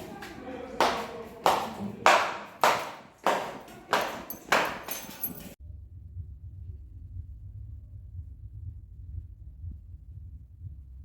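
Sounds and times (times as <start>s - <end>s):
low hum: 5.6s - 11.0s.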